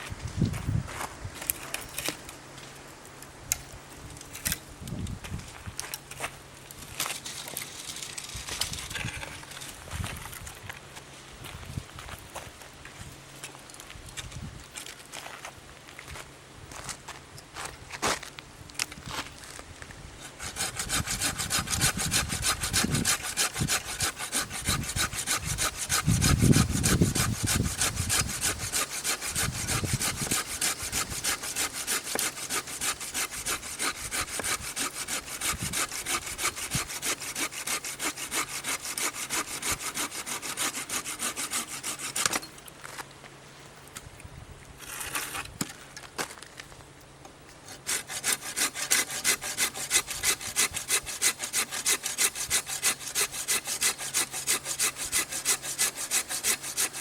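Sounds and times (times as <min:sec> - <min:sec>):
hand saw cutting wood: 0:07.0 - 0:09.8, 0:20.2 - 0:42.6, 0:47.7 - 0:57.0.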